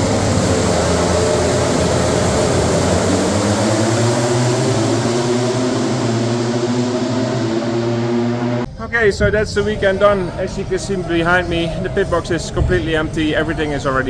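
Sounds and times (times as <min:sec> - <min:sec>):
loud hiss: 0:00.0 - 0:07.8
engine drone: 0:00.0 - 0:14.0.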